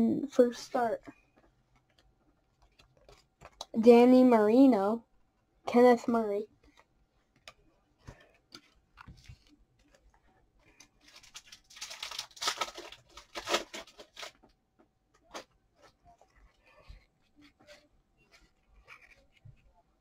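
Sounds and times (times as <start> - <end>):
foil pack tearing and crinkling: 11.1 - 14.4.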